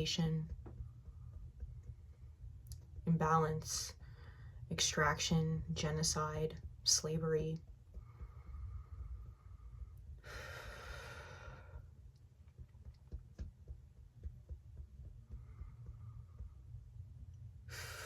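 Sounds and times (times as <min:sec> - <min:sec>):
woman breathing deeply: 0:04.0 - 0:04.7, 0:08.0 - 0:12.0, 0:17.7 - 0:18.0.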